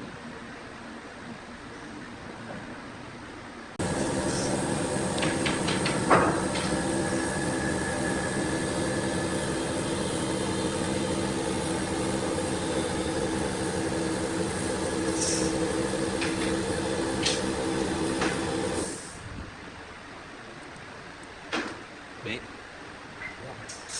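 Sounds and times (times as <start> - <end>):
workshop machine humming: 3.8 - 19.3.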